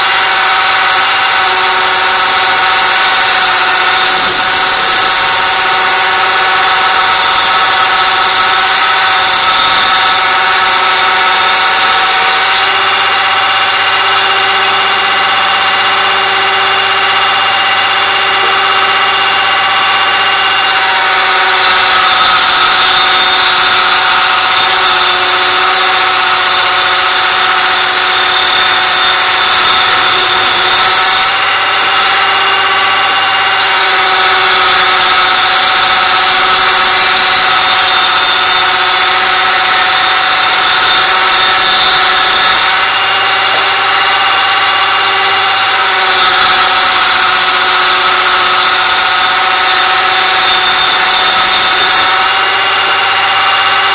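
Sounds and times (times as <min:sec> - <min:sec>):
wood being cut: 0:00.0 - 0:53.9
woodworking machine whining: 0:00.0 - 0:53.9.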